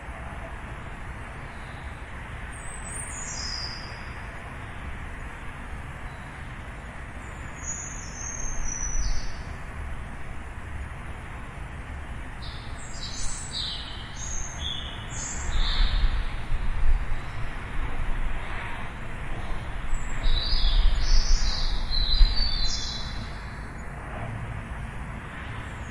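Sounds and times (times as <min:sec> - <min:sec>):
city traffic rumble: 0:00.0 - 0:25.9
small birds chirping: 0:12.4 - 0:16.5, 0:19.4 - 0:23.9.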